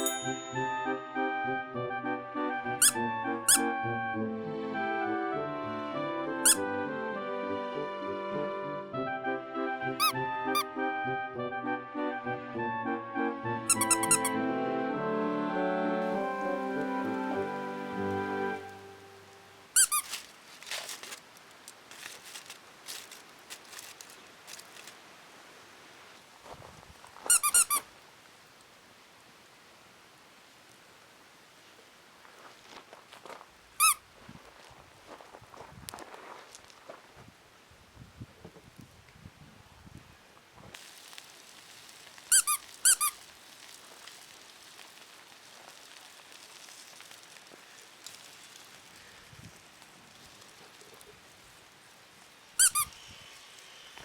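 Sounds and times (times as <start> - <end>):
high-pitched squeaky chirps: 0.0 - 1.0, 2.8 - 3.7, 6.4 - 6.6, 10.0 - 10.7, 13.7 - 14.4, 19.8 - 20.1, 27.3 - 27.8, 42.3 - 43.2, 52.6 - 53.0
wood fire crackling: 15.9 - 27.2, 40.7 - 52.8
faint ticks and rustles: 19.3 - 28.8, 31.6 - 37.4, 40.3 - 54.0.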